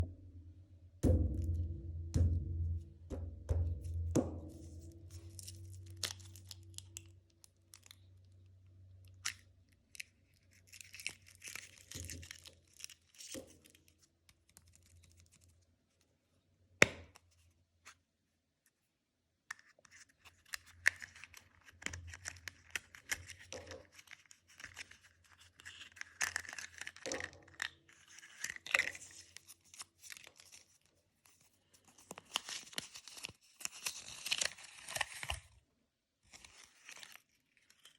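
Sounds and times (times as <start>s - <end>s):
foil wrapper crinkling and tearing: 5.1s - 8.1s, 9.1s - 13.9s, 20.4s - 30.9s, 31.9s - 35.5s, 36.3s - 37.9s.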